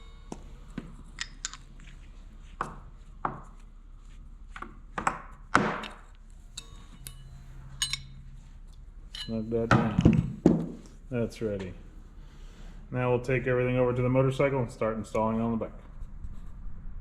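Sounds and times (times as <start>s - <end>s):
wrench clinking on metal: 1.1s - 1.7s, 5.8s - 8.2s, 9.1s - 9.7s.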